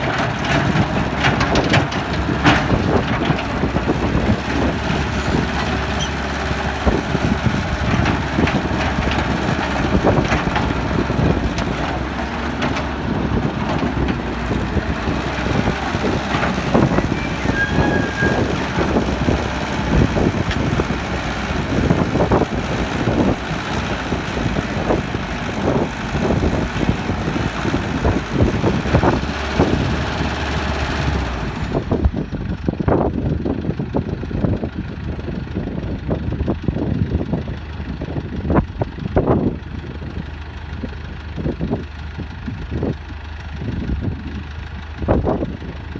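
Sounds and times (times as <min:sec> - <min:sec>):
knocks and clatter: 0:00.0 - 0:30.2
excavator diesel engine under load: 0:00.0 - 0:45.9.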